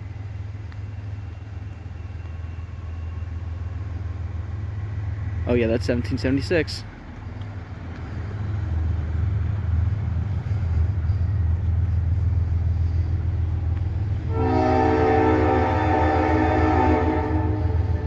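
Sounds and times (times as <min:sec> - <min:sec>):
diesel locomotive rumble: 0:00.0 - 0:18.0
locomotive air horn chord: 0:14.3 - 0:18.0.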